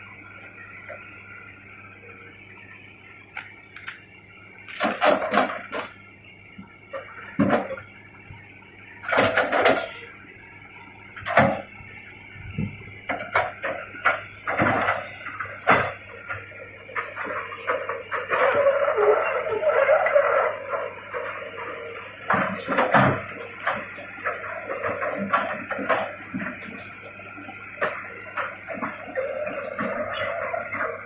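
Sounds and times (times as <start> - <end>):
excavator engine humming: 0.0 - 31.0.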